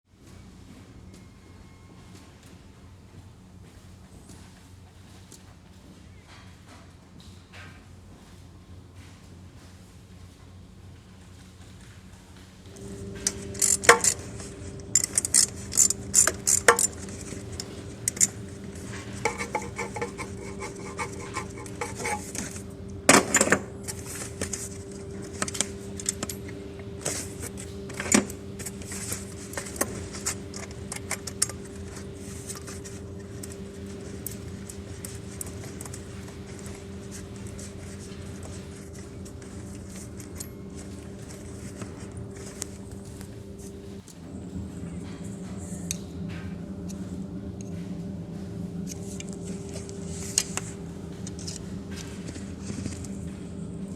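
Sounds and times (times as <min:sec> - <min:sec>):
steady hum: 0:00.1 - 0:53.9
metal clinking and clattering: 0:12.7 - 0:43.3.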